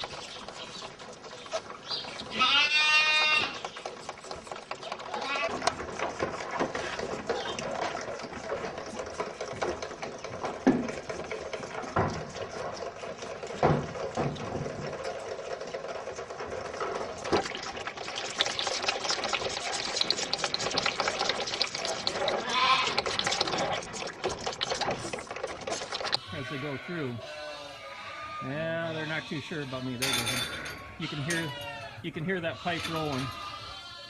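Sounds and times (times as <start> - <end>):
barn noise: 0.0 - 34.0
calves bleating: 2.3 - 3.7, 5.1 - 5.7, 22.4 - 23.1, 26.2 - 34.0.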